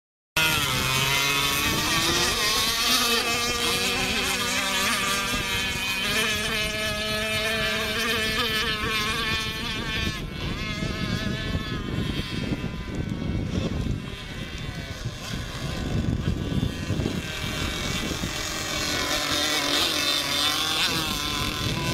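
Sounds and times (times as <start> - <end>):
model boat engine buzzing: 0.4 - 21.9.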